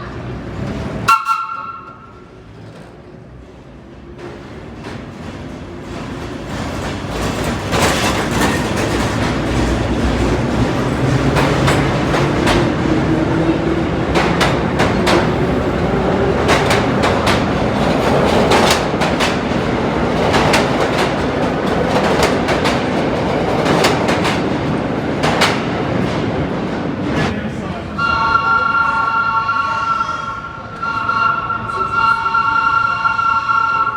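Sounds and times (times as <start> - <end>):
subway train rumbling: 0.0 - 33.9
wheels clacking over rail joints: 4.1 - 27.3.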